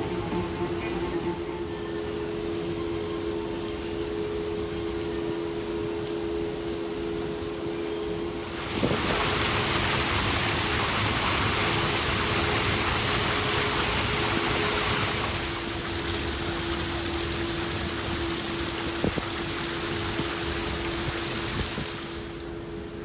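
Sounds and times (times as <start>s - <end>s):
steady rushing noise: 0.0s - 2.8s
low hum: 0.0s - 4.6s.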